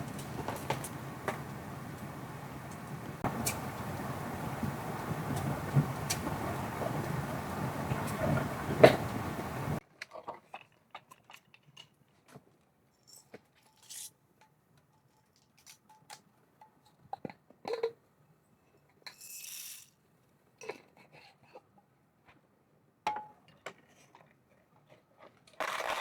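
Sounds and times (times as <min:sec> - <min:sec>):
short hiss: 0:00.0 - 0:09.8.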